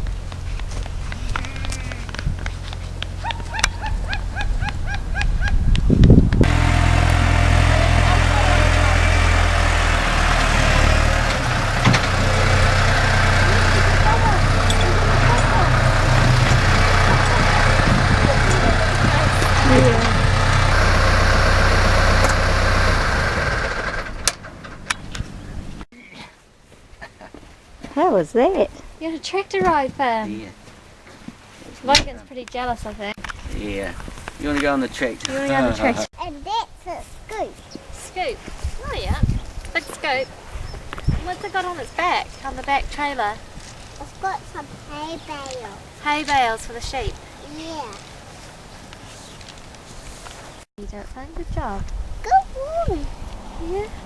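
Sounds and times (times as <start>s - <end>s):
tractor engine humming: 0.0s - 25.9s, 41.1s - 45.2s
small dog yapping: 3.2s - 5.6s.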